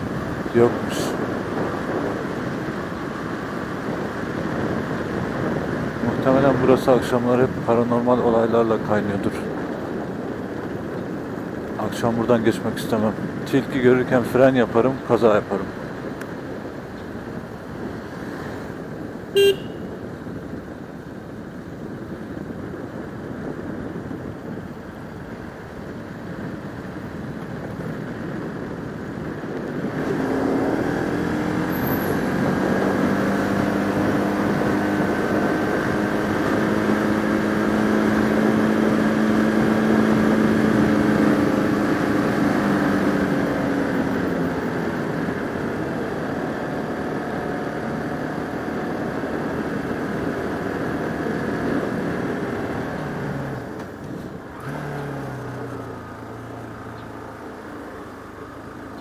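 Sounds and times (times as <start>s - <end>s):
wind rushing over microphone: 0.0s - 59.0s
motorcycle engine revving: 29.8s - 59.0s.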